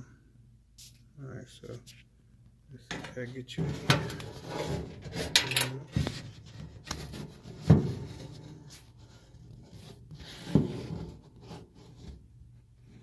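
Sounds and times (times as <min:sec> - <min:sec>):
rubbing and scraping: 0:02.9 - 0:12.3.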